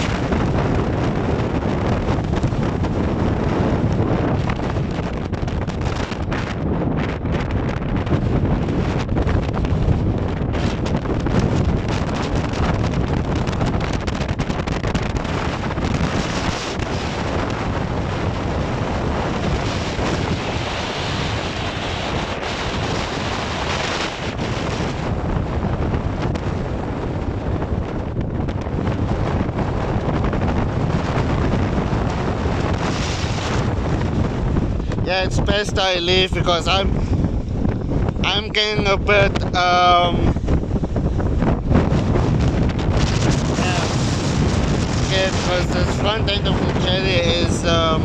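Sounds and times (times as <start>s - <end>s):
strong wind buffeting microphone: 0.0s - 48.0s
waves washing against a jetty: 10.7s - 26.7s.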